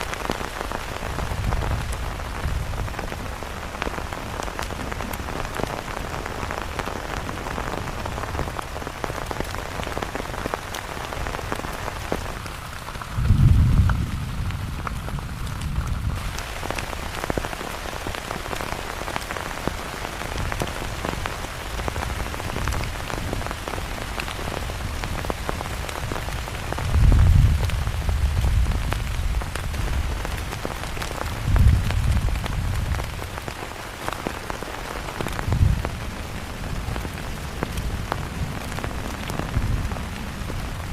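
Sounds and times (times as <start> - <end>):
heavy rain falling: 0.0 - 40.9
low rumble: 13.2 - 16.2.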